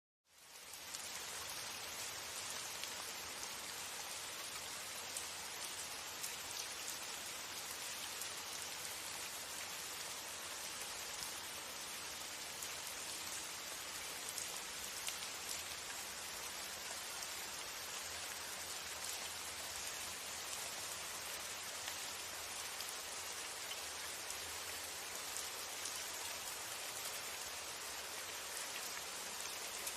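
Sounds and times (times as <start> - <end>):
rain on a window: 0.3 - 29.9.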